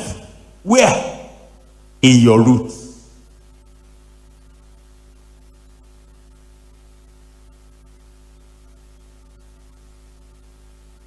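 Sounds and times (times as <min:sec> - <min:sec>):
mains hum: 0:00.0 - 0:11.0
static hiss: 0:00.0 - 0:11.0.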